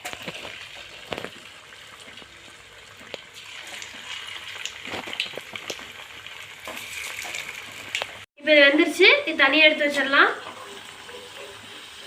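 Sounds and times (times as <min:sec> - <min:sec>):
oil crackling and popping: 0:00.0 - 0:08.3
okra deep-frying in hot oil: 0:00.0 - 0:12.0.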